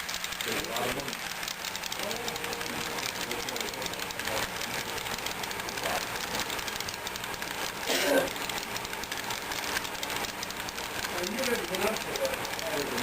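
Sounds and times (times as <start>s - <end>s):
model train whirring: 0.0s - 13.0s
wheels clicking on track: 0.0s - 13.0s.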